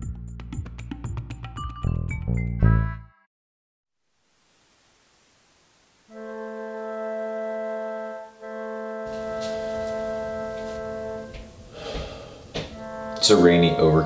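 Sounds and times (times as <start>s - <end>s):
organ chords: 6.1s - 14.0s.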